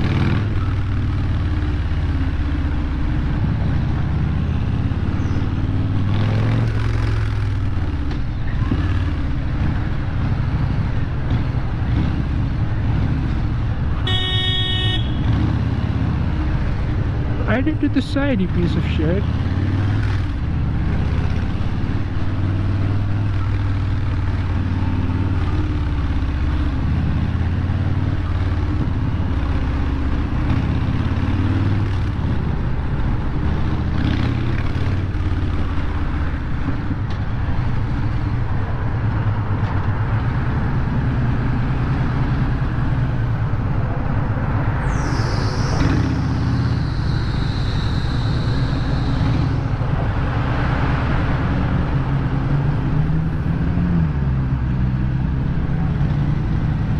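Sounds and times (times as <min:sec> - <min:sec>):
motorcycle engine rumbling: 0:00.0 - 0:56.9
high-pitched squeal: 0:44.5 - 0:50.7.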